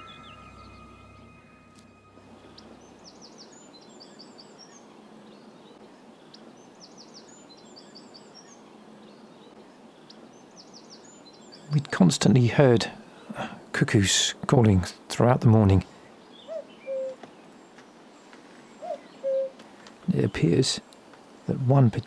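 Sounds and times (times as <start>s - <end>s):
songbird twittering: 0.0s - 11.9s, 16.1s - 19.6s
outdoor background hiss: 0.0s - 22.0s.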